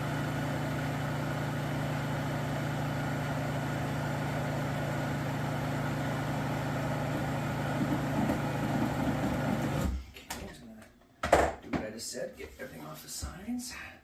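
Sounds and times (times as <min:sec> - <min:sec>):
electric blender motor running: 0:00.0 - 0:10.0.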